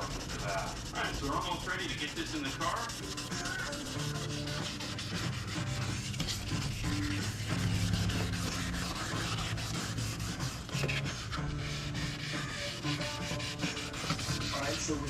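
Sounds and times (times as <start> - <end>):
scratchy sanding strokes: 0.0 - 15.0
background music with bass line: 3.2 - 15.0.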